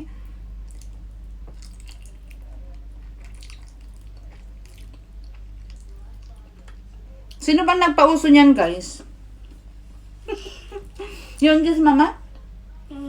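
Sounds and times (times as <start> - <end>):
steady low hum: 0.0 - 13.0
person chewing wetly: 0.2 - 7.4.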